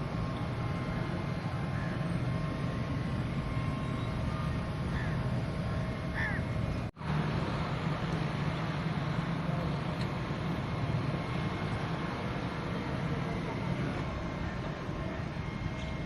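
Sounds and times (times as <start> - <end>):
bird calls: 4.9 - 6.8.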